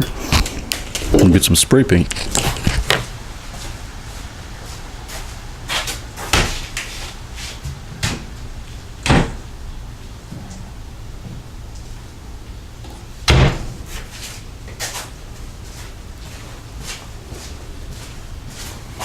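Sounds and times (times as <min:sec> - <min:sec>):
objects being moved: 0:00.0 - 0:03.1.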